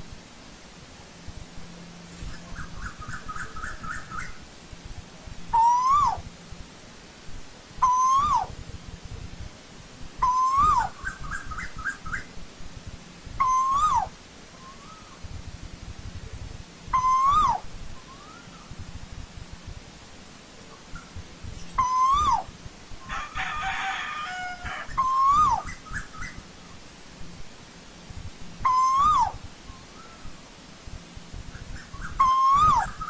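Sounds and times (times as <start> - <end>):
bird calling loudly: 5.5 - 6.2, 7.8 - 8.6, 10.2 - 12.3, 13.4 - 15.2, 16.9 - 18.7, 20.9 - 26.4, 28.6 - 30.4, 31.6 - 33.0
faint answering bird calls: 5.5 - 6.3, 7.8 - 8.6, 10.2 - 12.3, 13.4 - 15.3, 16.9 - 18.8, 21.7 - 26.8, 28.6 - 30.6, 31.7 - 33.0.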